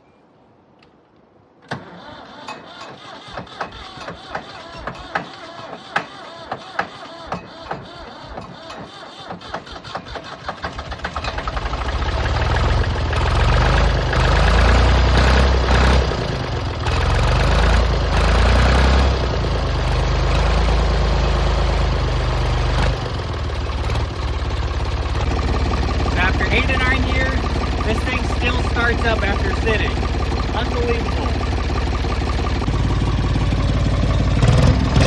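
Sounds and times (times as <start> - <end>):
starter cranking engine: 1.6 - 35.0
tractor diesel engine running: 1.6 - 35.0.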